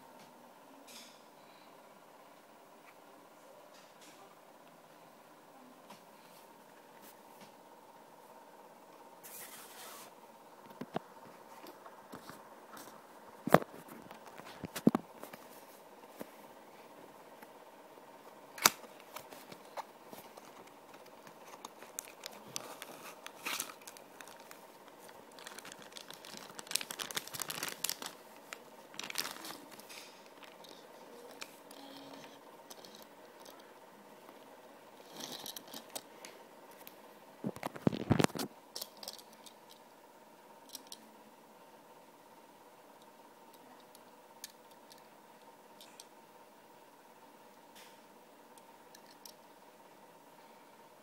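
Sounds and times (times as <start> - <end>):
cardboard and plastic rustling: 18.6 - 31.7, 37.5 - 38.5.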